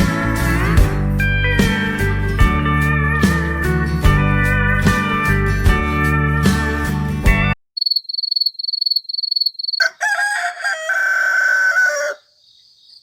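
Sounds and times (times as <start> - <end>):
guitar music: 0.0 - 7.6
rooster crowing: 9.7 - 12.4.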